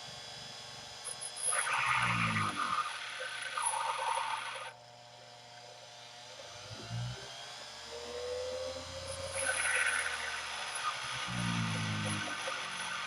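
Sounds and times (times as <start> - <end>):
faint motor hum: 0.0 - 13.0
grinder grinding tool bit: 1.2 - 4.8, 9.1 - 13.0.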